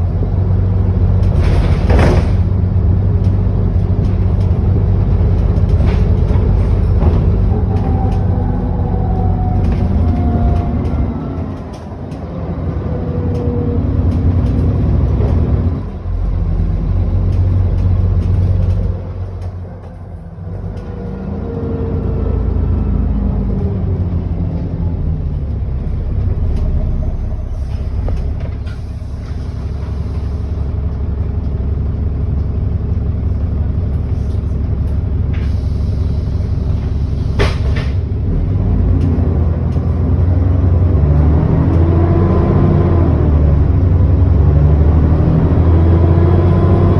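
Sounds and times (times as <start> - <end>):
bus diesel engine: 0.0 - 46.9.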